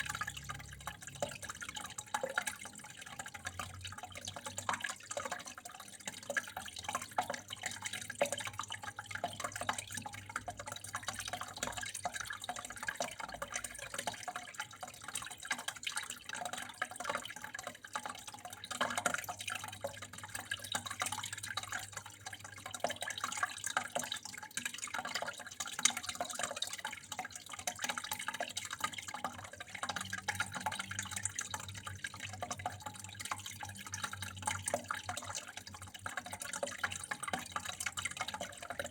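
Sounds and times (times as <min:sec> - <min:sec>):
water drips: 0:00.0 - 0:38.9
water flowing and splashing: 0:00.0 - 0:38.9.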